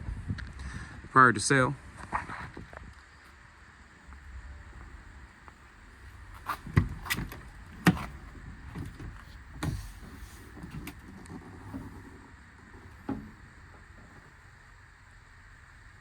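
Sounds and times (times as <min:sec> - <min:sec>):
truck door clunks: 0:04.1 - 0:15.0
door latch clicks: 0:06.0 - 0:09.9.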